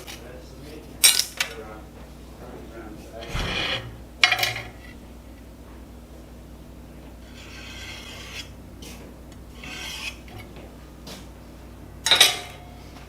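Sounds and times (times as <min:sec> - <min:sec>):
sharp metal clank: 0:03.2 - 0:04.8
file rasping on metal: 0:07.2 - 0:08.6, 0:09.5 - 0:10.4.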